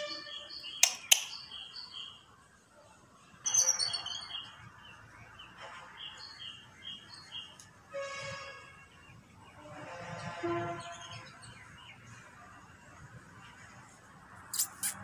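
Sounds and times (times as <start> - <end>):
bird chirping: 0.0 - 2.3, 3.4 - 7.6
sharp clicks: 0.8 - 1.4.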